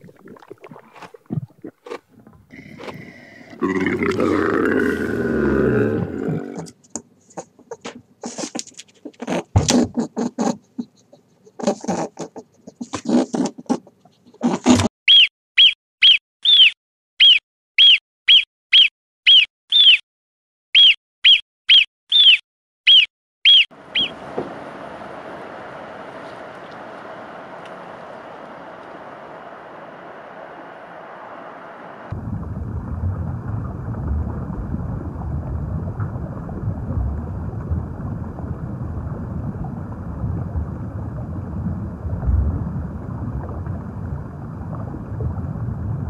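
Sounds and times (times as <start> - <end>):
marmot alarm whistles: 15.1 - 20.0, 20.8 - 24.2
steady noisy background: 23.8 - 32.2.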